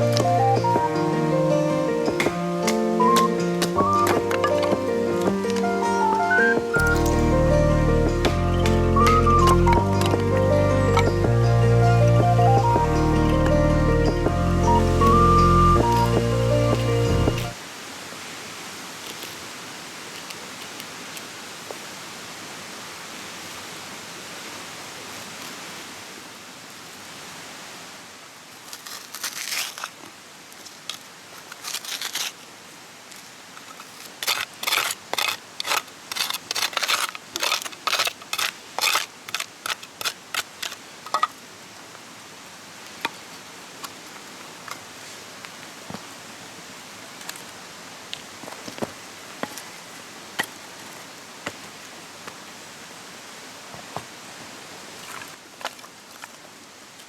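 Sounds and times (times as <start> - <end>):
stream water flowing: 0.0 - 28.5
hand saw cutting wood: 34.1 - 40.8.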